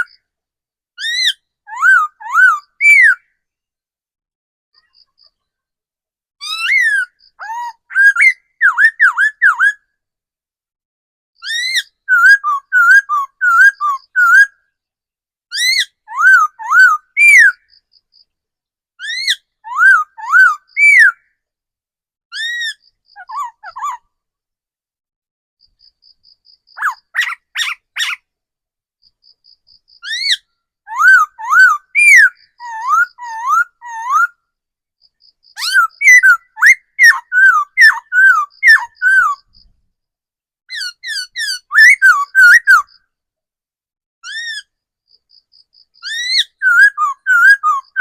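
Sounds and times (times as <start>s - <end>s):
bird singing whistled phrases: 1.0s - 3.3s, 6.4s - 9.8s, 11.4s - 14.6s, 15.6s - 17.7s, 19.0s - 21.3s, 30.0s - 34.4s, 35.6s - 39.5s, 40.7s - 43.0s, 46.0s - 48.0s
harsh rasping bird call: 26.7s - 28.2s, 46.0s - 48.0s.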